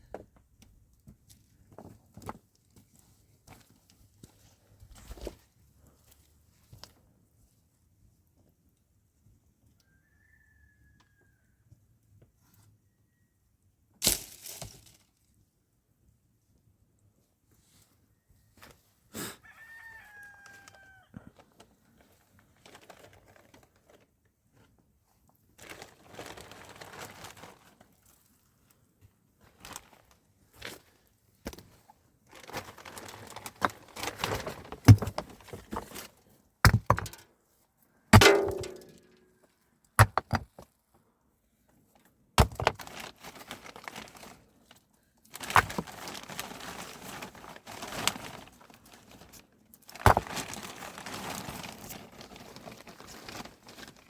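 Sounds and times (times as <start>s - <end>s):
rustling and scraping: 29.4s - 37.2s, 38.2s - 39.2s, 42.4s - 54.0s
objects knocking and thudding: 34.3s - 36.1s, 36.7s - 37.2s, 38.2s - 39.1s, 40.0s - 40.7s, 42.4s - 42.8s.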